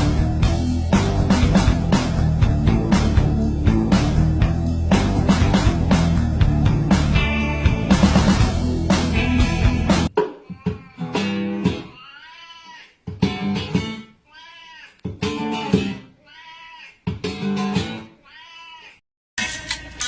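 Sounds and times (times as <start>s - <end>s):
guitar strums: 0.0s - 12.0s, 13.1s - 14.1s, 15.0s - 16.1s, 17.1s - 18.1s
cat meowing: 11.9s - 13.0s, 14.3s - 15.0s, 16.2s - 17.0s, 18.2s - 19.0s.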